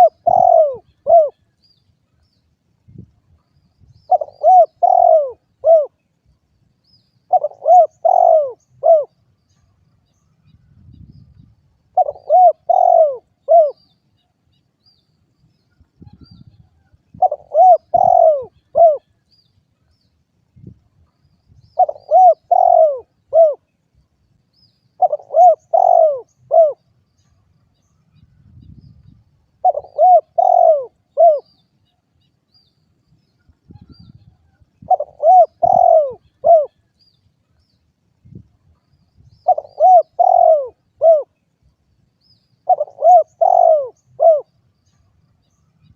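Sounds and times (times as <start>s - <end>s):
dove cooing: 0.0s - 1.5s, 4.1s - 6.0s, 7.3s - 9.2s, 11.9s - 13.8s, 17.1s - 19.2s, 21.8s - 23.7s, 25.0s - 26.8s, 29.6s - 31.6s, 34.8s - 36.9s, 39.4s - 41.4s, 42.6s - 44.5s.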